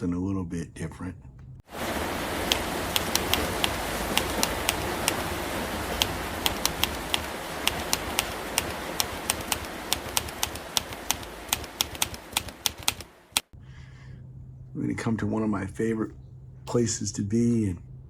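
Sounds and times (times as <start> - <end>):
steady hiss: 1.7 - 13.5
sharp irregular clicks: 2.4 - 13.6.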